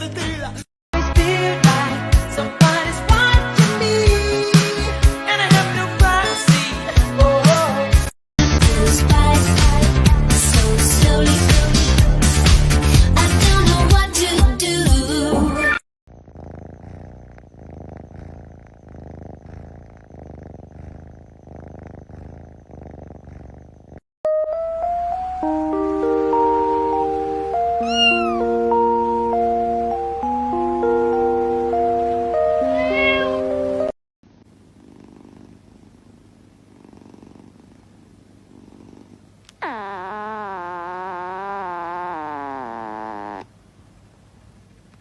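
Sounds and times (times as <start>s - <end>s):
cat purring: 15.3s - 24.1s, 34.3s - 45.0s
background music with held notes: 24.3s - 33.9s.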